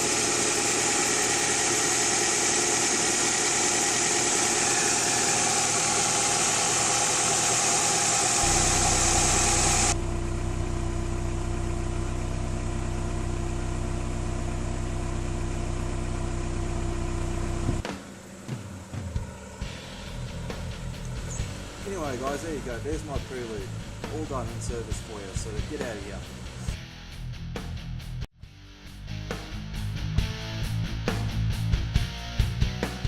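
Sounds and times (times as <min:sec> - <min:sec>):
car engine idling: 0:01.0 - 0:26.7
loud steady hiss: 0:06.4 - 0:10.0.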